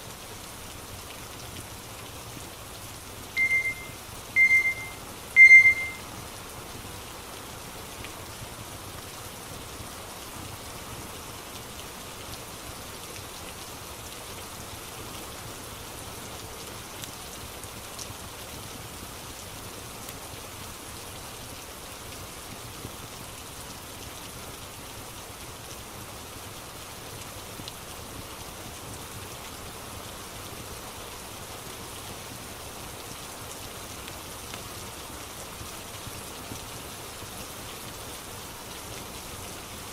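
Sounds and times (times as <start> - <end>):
steady rain hiss: 0.0 - 39.9
short electronic beep: 3.4 - 6.0.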